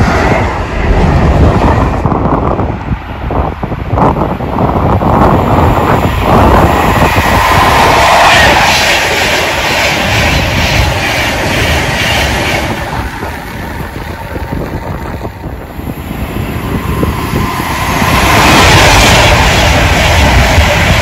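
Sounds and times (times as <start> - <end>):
train passing with rail clatter: 0.0 - 21.0.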